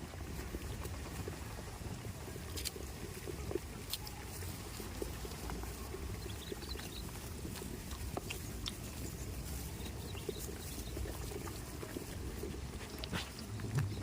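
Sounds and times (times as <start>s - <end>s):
goats snuffling: 0.0s - 14.0s
steady low rumble: 6.9s - 14.0s.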